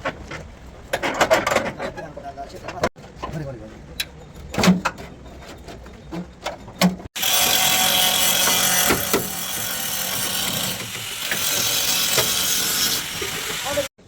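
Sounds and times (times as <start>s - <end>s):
power tool whirring: 7.2s - 13.9s.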